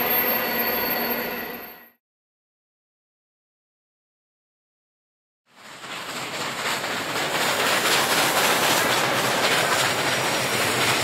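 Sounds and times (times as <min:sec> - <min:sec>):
train rumbling on rails: 0:05.5 - 0:11.0.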